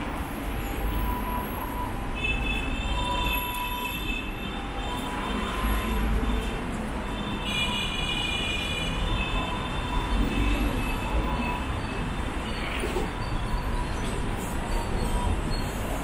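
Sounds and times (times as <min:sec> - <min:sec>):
street traffic noise: 0:00.0 - 0:16.0
high wheel squeal: 0:09.3 - 0:16.0.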